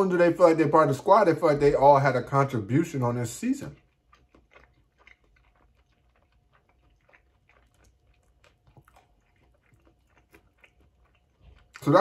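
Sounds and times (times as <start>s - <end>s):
person chewing: 2.5s - 12.0s.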